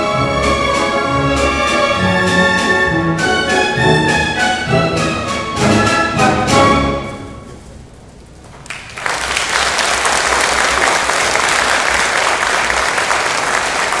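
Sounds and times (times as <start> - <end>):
audience applause: 8.6 - 14.0.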